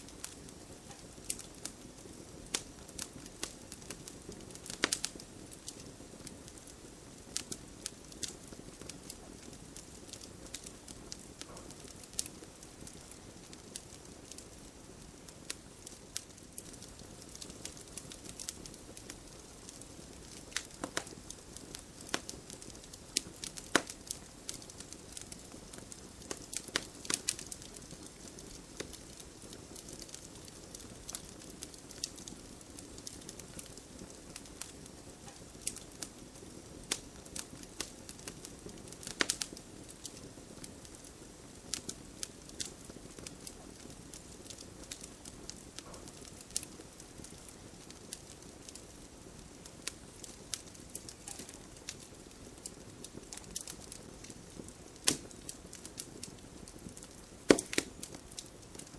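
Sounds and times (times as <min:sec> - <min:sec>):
campfire crackling and popping: 0:00.0 - 0:58.9.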